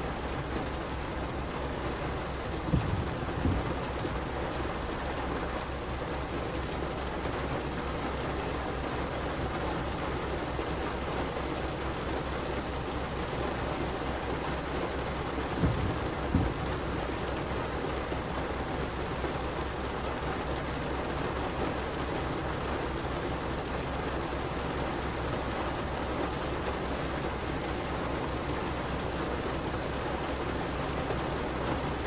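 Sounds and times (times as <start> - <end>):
heavy rain on a car: 0.0 - 32.0
low thumps: 0.2 - 6.8, 13.6 - 19.0.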